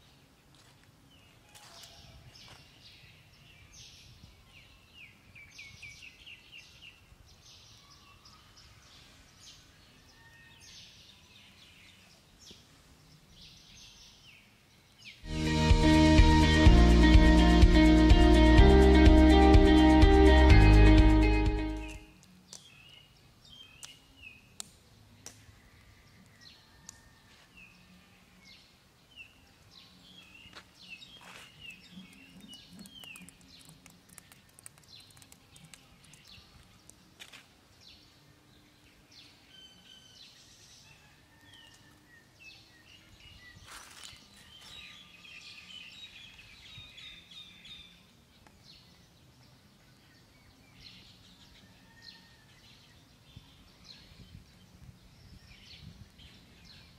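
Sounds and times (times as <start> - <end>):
small birds chirping: 21.6 - 56.9
faint clicks: 32.4 - 37.0.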